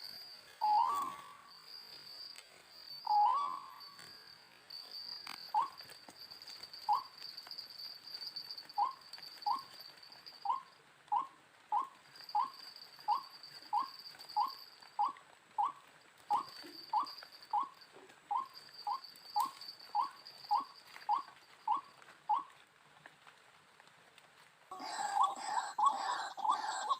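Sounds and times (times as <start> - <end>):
waterhen calling: 0.6 - 1.6, 3.0 - 4.0, 5.5 - 5.8, 10.5 - 22.6, 24.7 - 26.9.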